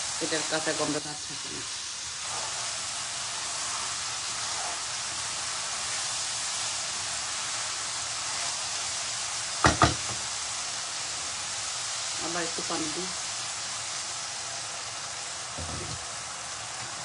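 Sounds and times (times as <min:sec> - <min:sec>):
paste sizzling in hot oil: 0:00.0 - 0:17.0
sharp knocks: 0:09.6 - 0:10.2.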